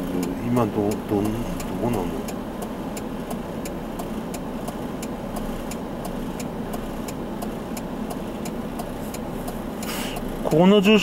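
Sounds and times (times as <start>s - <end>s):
car engine idling: 0.0s - 11.0s
fast even ticking: 0.0s - 11.0s.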